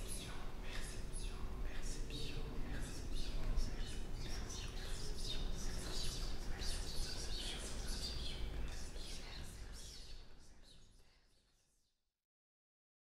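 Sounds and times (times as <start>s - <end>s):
birds chirping: 2.0s - 10.2s.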